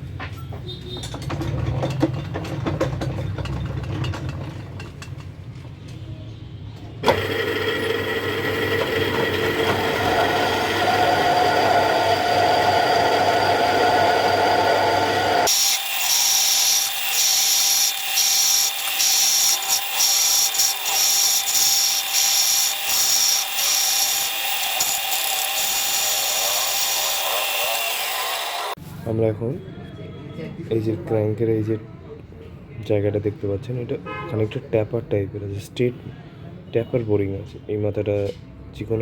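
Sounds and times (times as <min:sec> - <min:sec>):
metal lathe humming: 0:07.0 - 0:28.8
cutting tool scraping hiss: 0:14.8 - 0:28.8.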